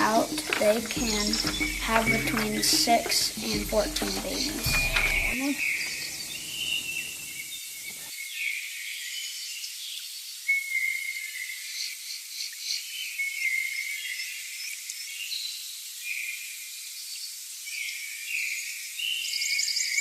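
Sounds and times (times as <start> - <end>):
birds chirping: 0.0 - 8.1
insects chirping: 0.0 - 8.1.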